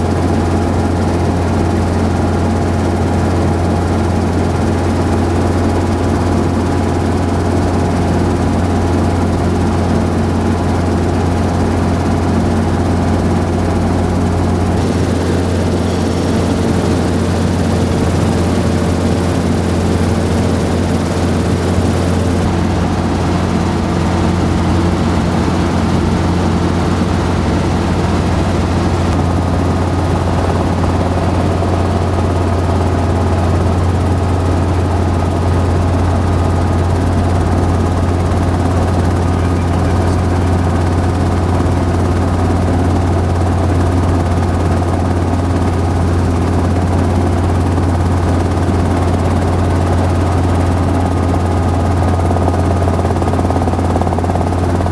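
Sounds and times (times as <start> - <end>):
helicopter drone from inside: 0.0 - 54.9.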